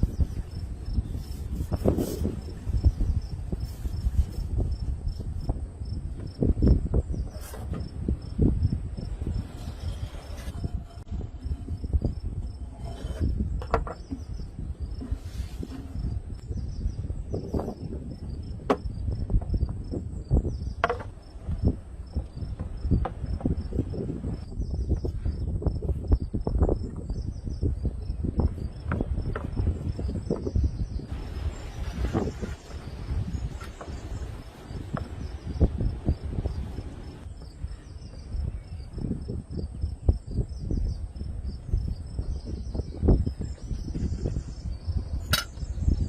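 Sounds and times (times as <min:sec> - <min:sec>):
crickets chirping: 0:00.0 - 0:46.0
low knocks and thumps: 0:05.4 - 0:26.9, 0:28.2 - 0:37.6.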